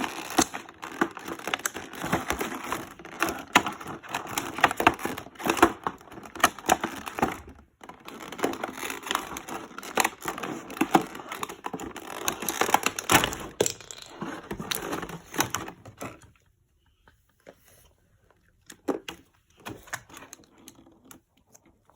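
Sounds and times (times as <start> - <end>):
plastic packaging crinkling: 0.0 - 13.7.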